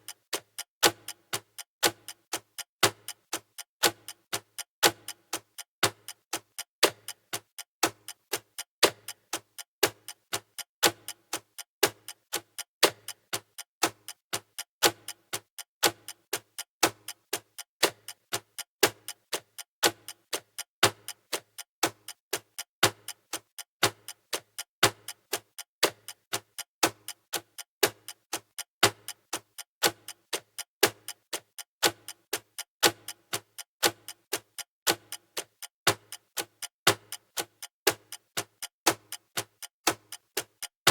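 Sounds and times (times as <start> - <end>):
rapid clock-like ticking: 0.0 - 40.9.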